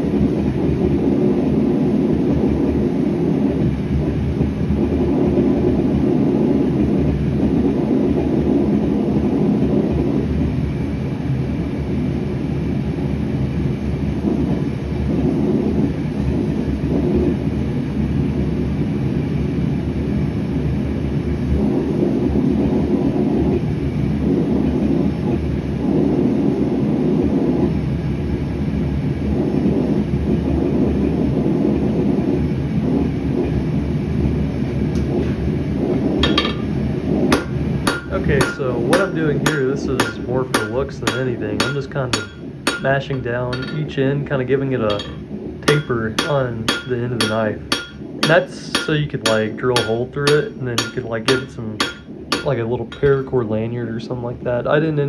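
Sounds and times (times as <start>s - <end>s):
gas burner rumbling: 0.0s - 55.0s.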